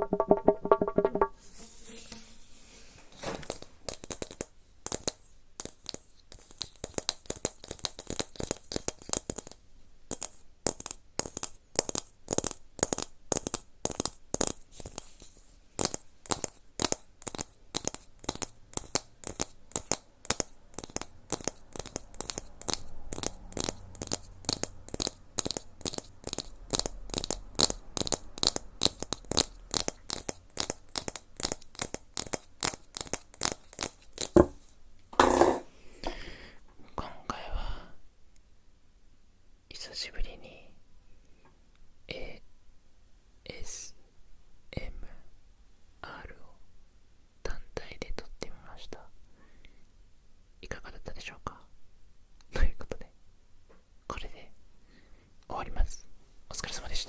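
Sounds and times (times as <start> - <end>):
crisp clicks and taps: 3.4 - 15.2, 15.8 - 34.6.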